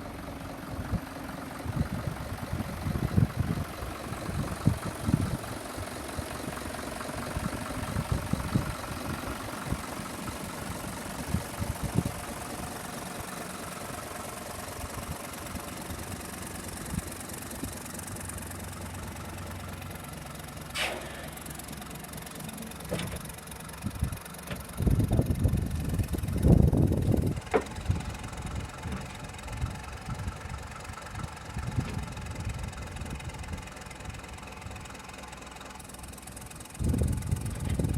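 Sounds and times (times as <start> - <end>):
tractor diesel engine idling: 0.0 - 37.9
sharp click: 20.8 - 21.3.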